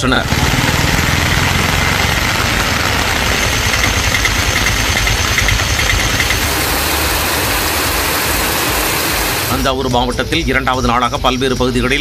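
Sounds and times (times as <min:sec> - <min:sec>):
rapid high chirps: 0:00.0 - 0:09.8
low engine rumble: 0:00.0 - 0:10.8
heavy rain on street: 0:00.2 - 0:04.4, 0:06.2 - 0:09.6.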